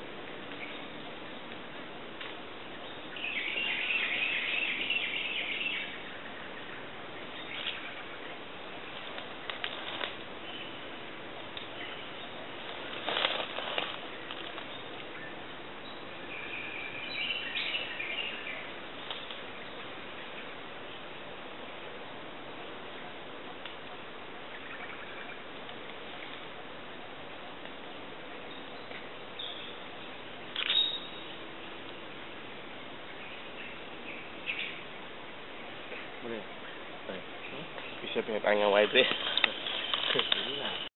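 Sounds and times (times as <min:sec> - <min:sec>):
ambient hiss: 0:00.0 - 0:40.9
small birds chirping: 0:00.0 - 0:40.9
faint clicks: 0:23.6 - 0:24.0.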